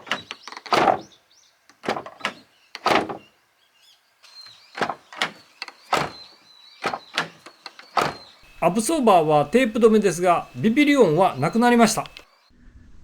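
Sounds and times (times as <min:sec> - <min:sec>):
car door shutting: 0:00.0 - 0:01.1, 0:01.7 - 0:03.3
door latch and handle clicks: 0:00.0 - 0:01.1, 0:01.7 - 0:03.3, 0:04.5 - 0:09.7.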